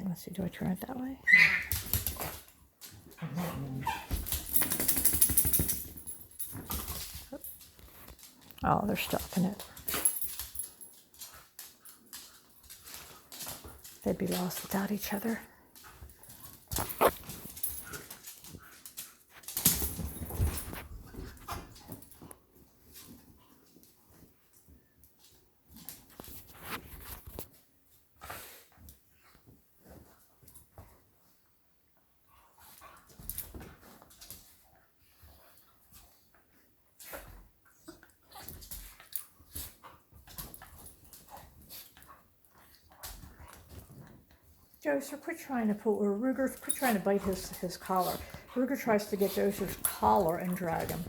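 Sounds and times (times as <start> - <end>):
dogs scuffling: 1.3 - 27.7, 38.3 - 51.0.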